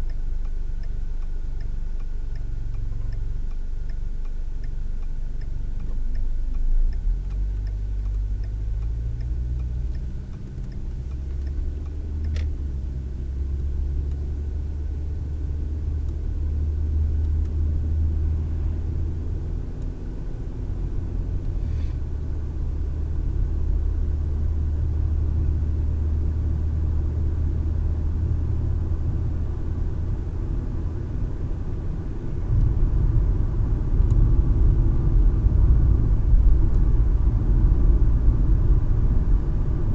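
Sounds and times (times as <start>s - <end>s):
car engine and road rumble: 0.0s - 39.9s
turn signal ticking: 0.0s - 39.9s.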